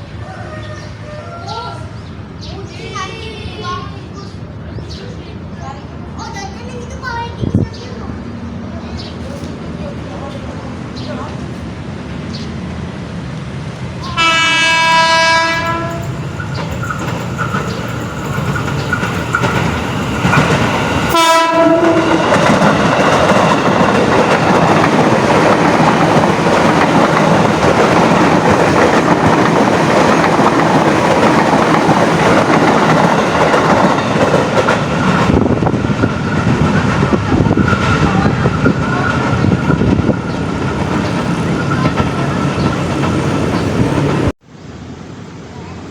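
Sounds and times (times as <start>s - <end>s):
train passing close by: 0.0s - 45.9s
train horn blasts: 14.0s - 16.2s, 21.1s - 22.4s.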